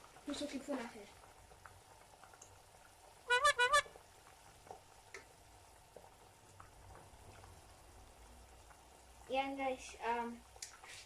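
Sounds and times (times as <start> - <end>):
high-pitched call: 3.3 - 3.9
utensil clicking in a pot: 10.6 - 10.8.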